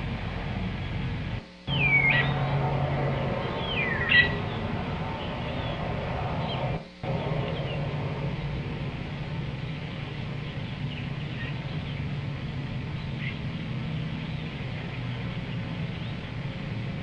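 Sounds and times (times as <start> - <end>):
outdoor background noise: 0.0 - 17.0
steady low hum: 0.0 - 17.0
faint bird chirps: 1.7 - 7.9, 9.6 - 12.1, 12.9 - 14.7.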